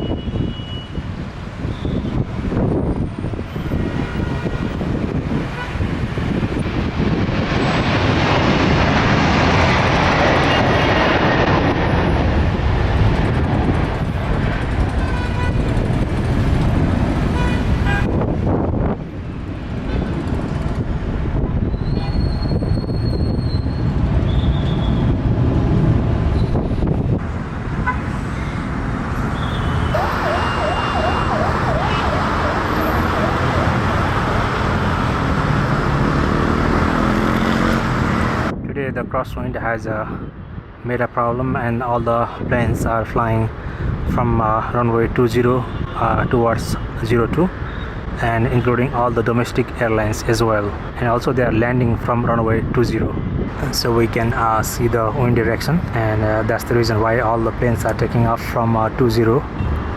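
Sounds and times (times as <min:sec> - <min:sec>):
jet engines running: 0:01.3 - 0:21.8, 0:28.7 - 0:38.5
wavering siren-like tone: 0:29.4 - 0:34.2.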